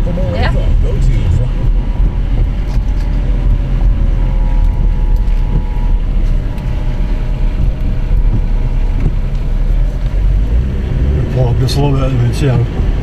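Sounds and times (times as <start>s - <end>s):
vehicle rumble: 0.0s - 13.0s
wind buffeting microphone: 0.0s - 13.0s
faint steady tones: 0.2s - 10.0s.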